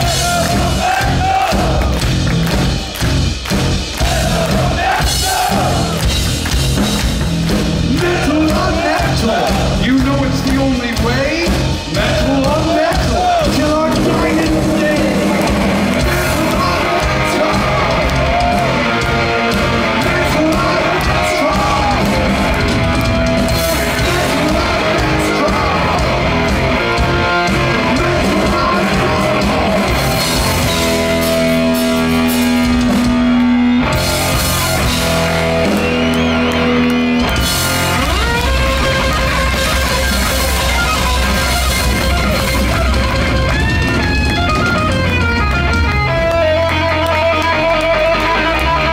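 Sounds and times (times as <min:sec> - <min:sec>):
bass guitar: 0:00.0 - 0:48.9
distorted electric guitars: 0:00.0 - 0:48.9
drums: 0:00.0 - 0:48.9
person singing: 0:07.9 - 0:18.4, 0:19.8 - 0:22.3, 0:23.5 - 0:30.0.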